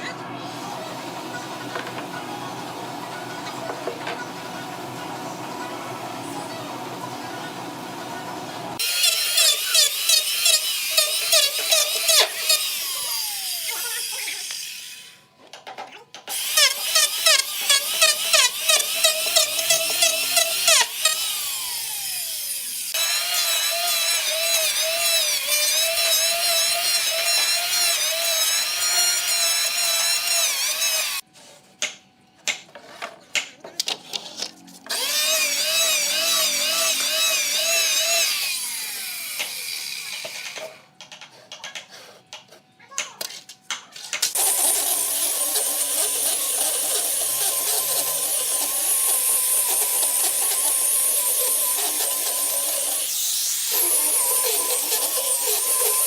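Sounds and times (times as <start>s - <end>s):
electric power tool cutting wood: 8.8s - 15.2s, 16.3s - 31.2s, 34.9s - 40.8s, 44.3s - 56.0s.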